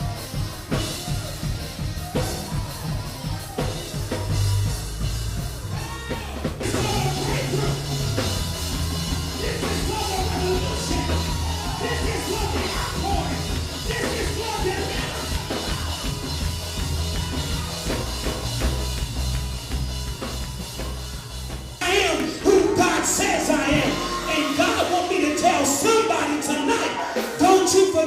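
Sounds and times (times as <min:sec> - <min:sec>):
bass line: 0:00.0 - 0:28.0
drum kit: 0:00.0 - 0:28.0
voices: 0:09.2 - 0:16.4.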